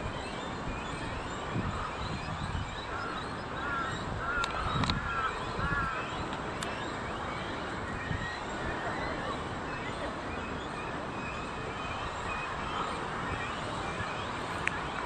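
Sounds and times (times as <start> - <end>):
crow cawing: 3.6 - 4.4.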